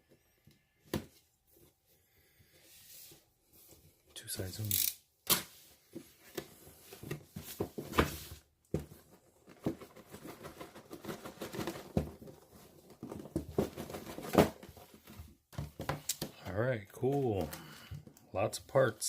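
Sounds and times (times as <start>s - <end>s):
rustling and crinkling packaging: 6.0s - 17.9s.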